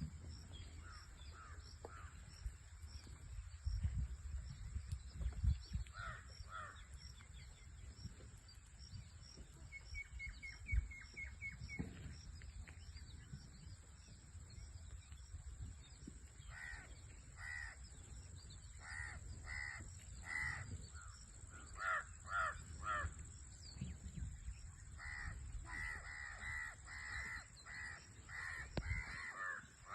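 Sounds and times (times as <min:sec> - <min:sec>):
crows cawing: 0:05.9 - 0:06.8, 0:16.5 - 0:17.8, 0:18.8 - 0:23.2, 0:25.0 - 0:29.9.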